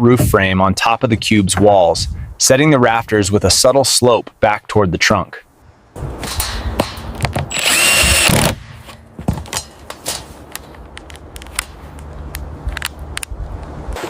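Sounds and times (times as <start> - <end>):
power tool whining: 7.5 - 8.6.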